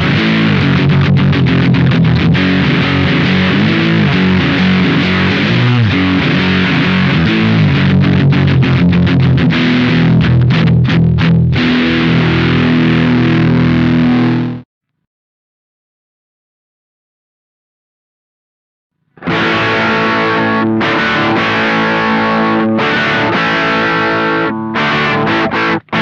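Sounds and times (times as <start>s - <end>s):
distorted electric guitar: 0.0s - 14.7s, 19.1s - 26.0s.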